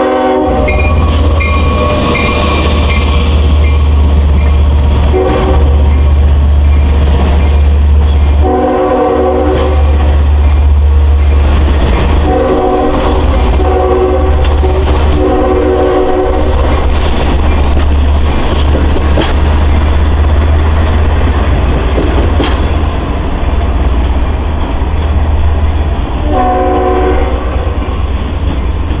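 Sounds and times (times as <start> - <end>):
train horn blasts: 0.0 - 3.0, 5.1 - 5.8, 8.4 - 10.0, 12.2 - 16.7, 26.2 - 27.9
train rumbling past: 0.0 - 29.0
train wheel clicks: 5.8 - 8.4, 9.5 - 12.3, 16.5 - 26.2.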